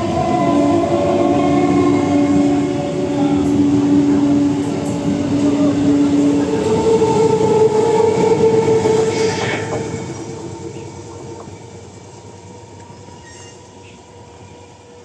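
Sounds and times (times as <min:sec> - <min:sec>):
train coaches rolling past: 0:00.0 - 0:15.0.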